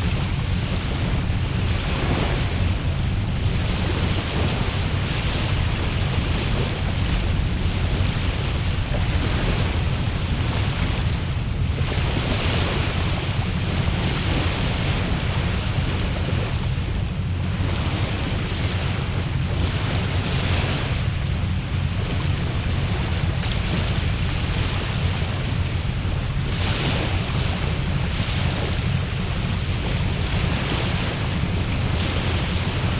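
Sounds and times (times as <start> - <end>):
thin high whine: 0.0 - 32.9
wind rumble on microphone: 0.0 - 32.9.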